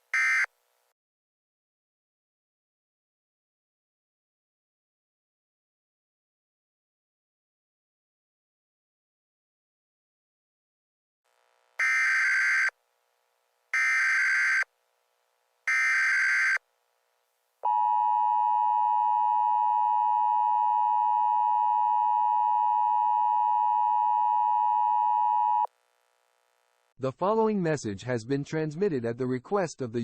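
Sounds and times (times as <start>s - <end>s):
emergency attention tone: 0.2s - 0.5s, 17.6s - 25.7s.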